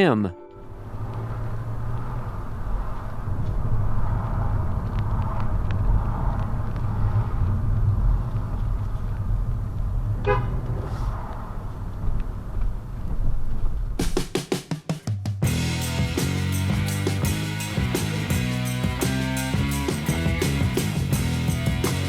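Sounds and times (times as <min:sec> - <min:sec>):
car engine and road rumble: 0:00.7 - 0:14.0
car horn toot: 0:10.2 - 0:10.6.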